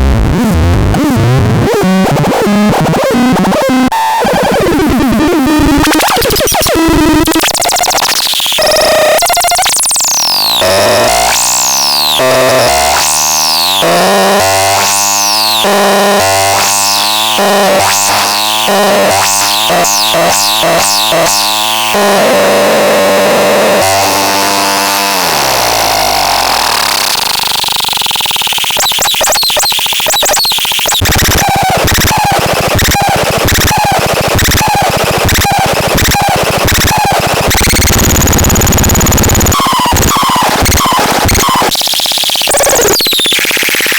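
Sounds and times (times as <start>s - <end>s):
synthesizer pitch sweeps: 4.5s - 34.0s
fast stuttering synth pulse: 4.8s - 25.0s, 25.8s - 43.9s
buzzy low synth tones: 8.6s - 27.2s.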